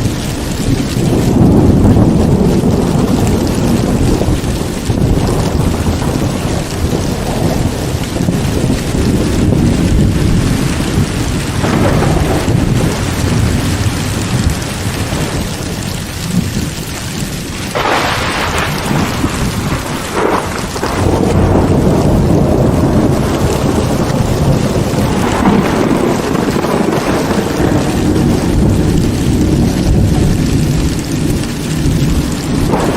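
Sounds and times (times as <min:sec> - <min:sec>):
heavy rain falling: 0:00.0 - 0:32.9
rolling thunder: 0:00.0 - 0:32.9
sharp thunderclap: 0:00.0 - 0:32.9.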